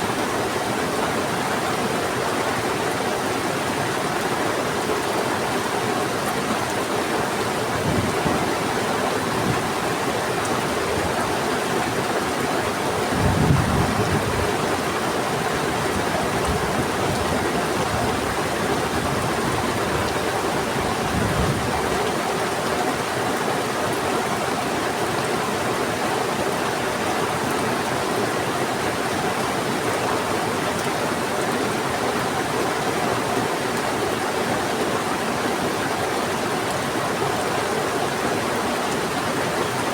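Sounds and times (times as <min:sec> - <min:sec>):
river rushing: 0:00.0 - 0:39.9
heavy rain falling: 0:00.1 - 0:39.9
thunder rumbling: 0:13.1 - 0:14.8.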